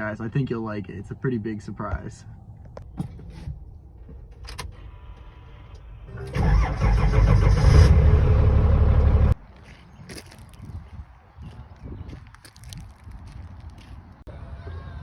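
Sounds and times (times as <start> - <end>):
truck engine cranking and running: 6.1 - 9.4.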